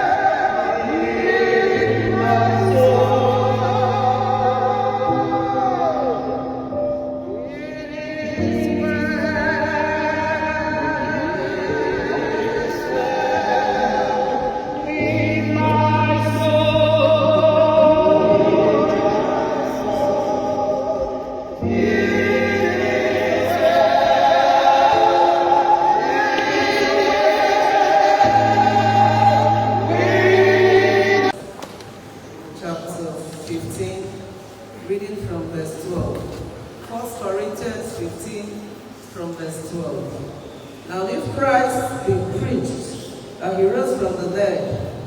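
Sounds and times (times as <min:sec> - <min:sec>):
choir singing gospel: 0:00.0 - 0:45.0
bass accompaniment: 0:27.8 - 0:31.3.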